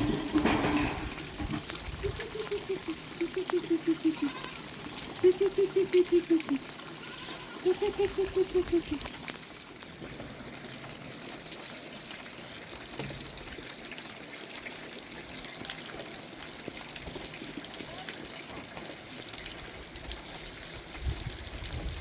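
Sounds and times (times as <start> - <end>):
rainwater trickling: 0.0 - 22.0
wavering pulsing call: 2.0 - 4.4, 5.2 - 6.6, 7.7 - 9.0.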